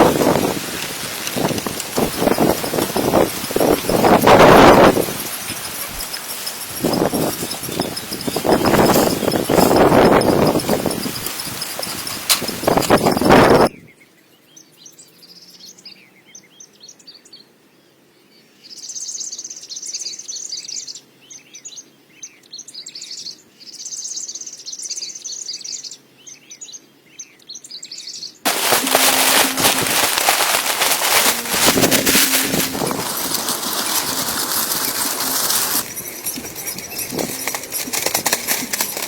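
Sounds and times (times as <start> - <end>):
rattle of rapid clicks: 0.1 - 13.3, 28.5 - 39.0
songbirds chirping: 0.1 - 29.3, 32.8 - 39.0
bird trills: 1.4 - 13.3, 28.6 - 39.0.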